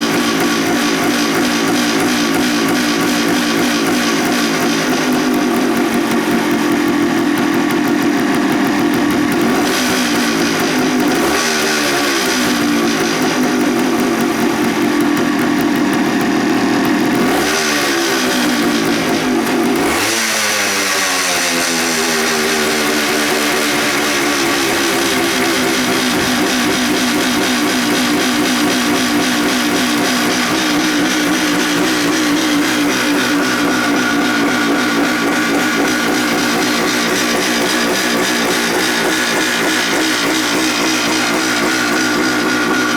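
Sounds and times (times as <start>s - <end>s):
two-stroke engine idling and revving: 0.0s - 42.9s.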